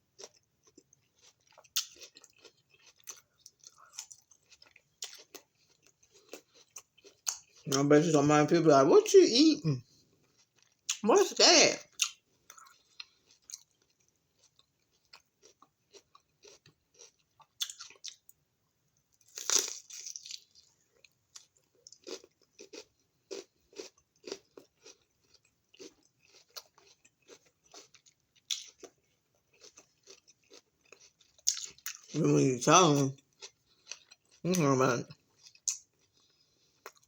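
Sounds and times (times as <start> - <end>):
chewing crunches: 0.2 - 7.8, 10.2 - 11.0, 11.8 - 18.3, 19.2 - 32.2, 33.1 - 37.0
crunchy bites: 19.3 - 20.6.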